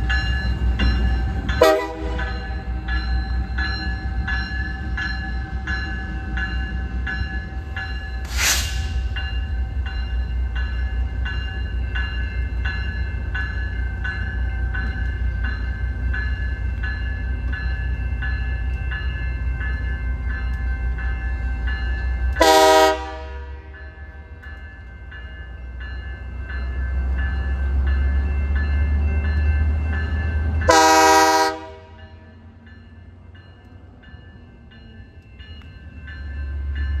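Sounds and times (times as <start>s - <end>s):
locomotive bell ringing: 0.0s - 37.0s
locomotive horn blasts: 1.6s - 2.4s, 22.4s - 23.7s, 30.7s - 32.0s
brief hiss: 8.2s - 9.0s.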